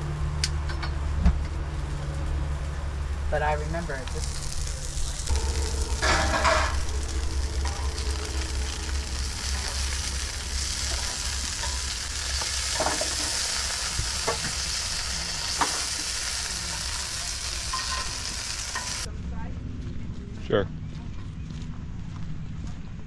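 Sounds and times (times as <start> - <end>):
low hum: 0.0 - 23.0
food sizzling on a griddle: 3.4 - 19.1.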